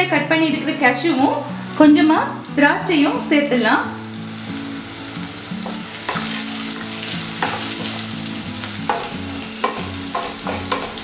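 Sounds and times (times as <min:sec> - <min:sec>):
food sizzling in hot oil: 0:00.1 - 0:11.0.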